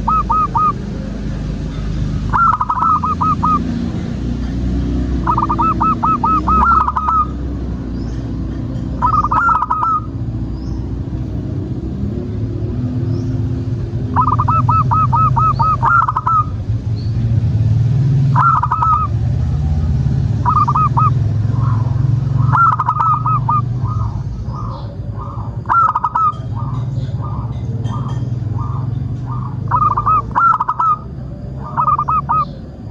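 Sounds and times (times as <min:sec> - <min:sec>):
doves cooing: 0:00.0 - 0:01.6, 0:02.2 - 0:11.0, 0:13.4 - 0:16.7, 0:18.2 - 0:32.9.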